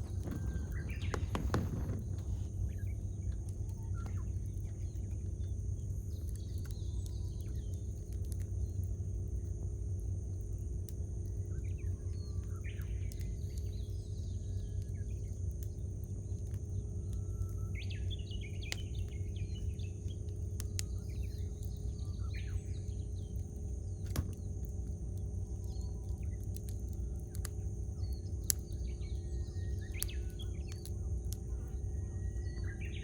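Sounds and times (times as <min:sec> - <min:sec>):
birds chirping: 0:00.0 - 0:07.8, 0:17.4 - 0:33.0
campfire crackling and popping: 0:00.0 - 0:33.0
steady low background noise: 0:00.0 - 0:33.0.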